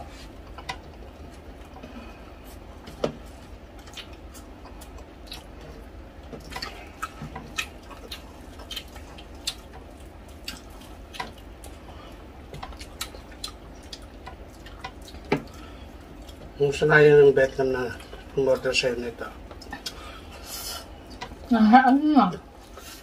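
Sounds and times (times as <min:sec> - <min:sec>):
low steady hum: 0:00.0 - 0:23.0
wet chewing and lip smacks: 0:03.7 - 0:05.6, 0:06.2 - 0:11.8, 0:12.6 - 0:16.5.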